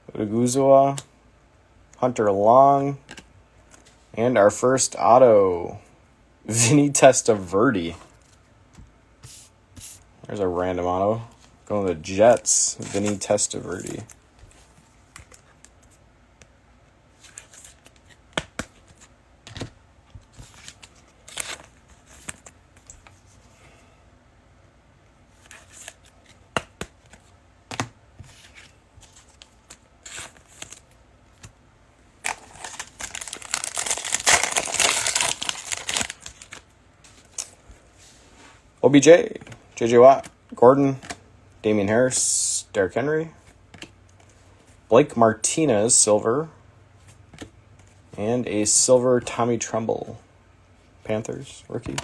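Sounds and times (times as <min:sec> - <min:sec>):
trading cards clicking and rustling: 0:11.8 - 0:16.5, 0:25.4 - 0:31.6, 0:32.2 - 0:37.6, 0:39.3 - 0:41.2, 0:51.2 - 0:52.0
card pack wrapper tearing and crinkling: 0:32.2 - 0:36.6.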